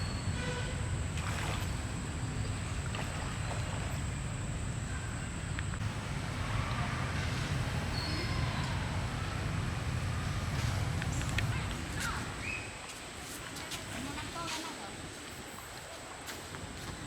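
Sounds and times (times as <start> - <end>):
steady low rumble: 0.8 - 12.5
faint bird chirps: 7.9 - 8.6, 12.4 - 12.8.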